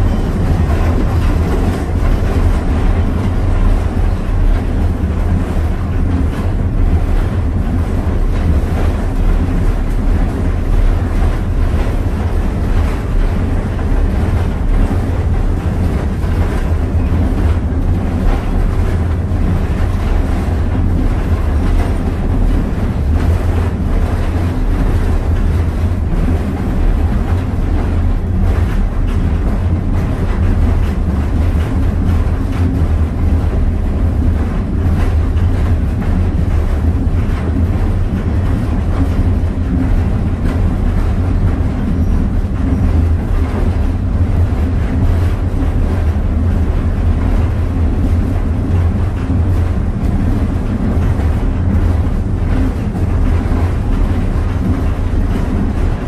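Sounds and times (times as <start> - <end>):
train rumble: 0.0 - 56.0.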